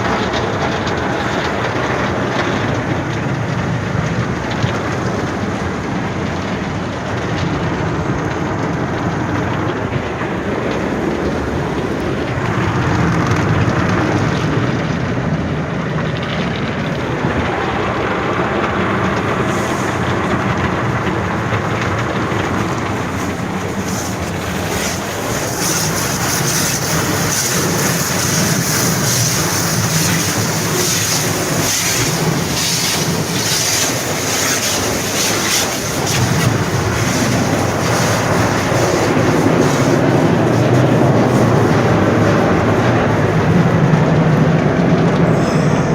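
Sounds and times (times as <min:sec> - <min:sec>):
car wash machinery rumble: 0:00.0 - 0:45.9
rushing water: 0:00.0 - 0:45.9
harsh hissing noise: 0:16.9 - 0:44.2
brush noise: 0:22.4 - 0:43.2.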